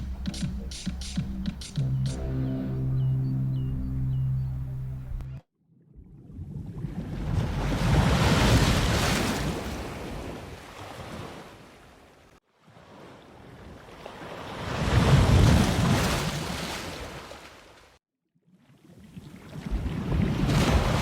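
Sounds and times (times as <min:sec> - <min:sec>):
ocean waves breaking on shore: 0:06.4 - 0:17.9, 0:18.8 - 0:21.0.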